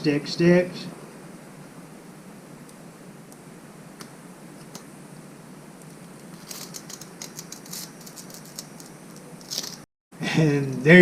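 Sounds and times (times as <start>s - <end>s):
steady background hiss: 0.0s - 11.0s
fingers pressing sticker scratchy clicks: 6.2s - 9.8s.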